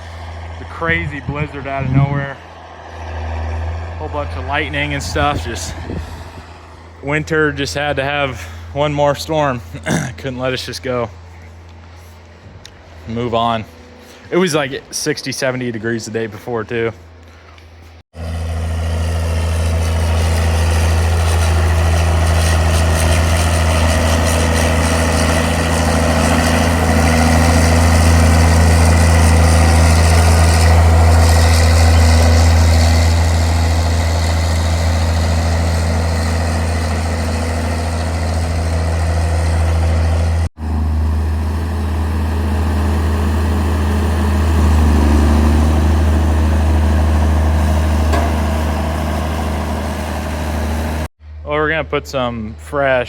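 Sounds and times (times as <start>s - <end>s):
engine idling: 18.2s - 51.1s.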